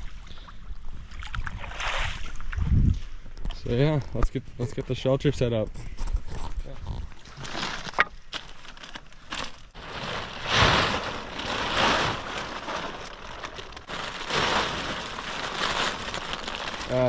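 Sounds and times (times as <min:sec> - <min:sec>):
plastic tarp rustling and crinkling: 0:07.2 - 0:17.0
tarp snapping: 0:07.4 - 0:17.0.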